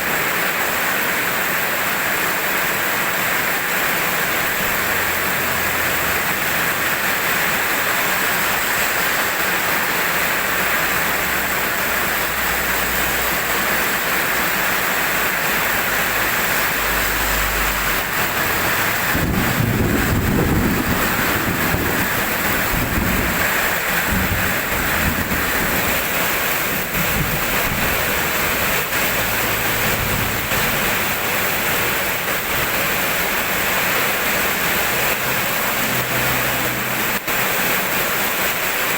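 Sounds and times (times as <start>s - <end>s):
steady rain falling: 0.0s - 38.9s
thunder rumbling: 17.1s - 33.8s.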